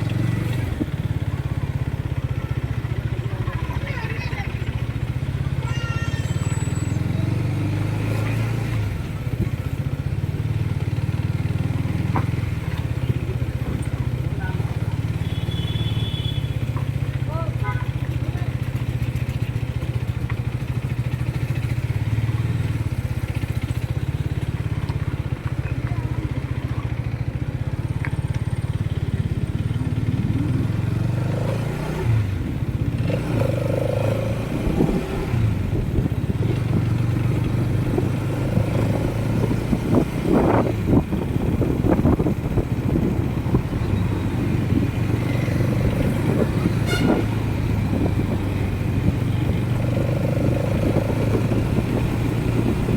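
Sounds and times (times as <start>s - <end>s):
motorcycle engine running: 0.0s - 52.9s
low wind rumble: 34.2s - 52.9s.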